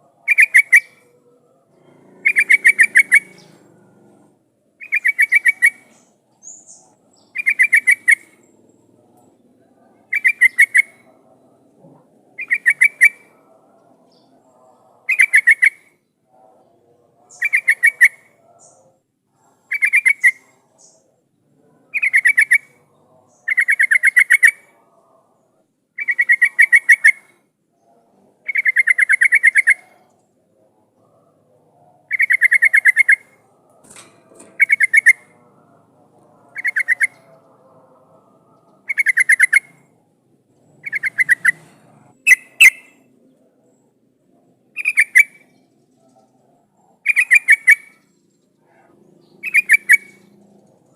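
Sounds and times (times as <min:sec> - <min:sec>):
bulbul singing: 0:00.0 - 0:03.7, 0:04.8 - 0:11.6, 0:12.4 - 0:19.0, 0:19.7 - 0:21.2, 0:21.9 - 0:24.8, 0:32.0 - 0:40.0, 0:40.8 - 0:43.9, 0:44.7 - 0:50.9.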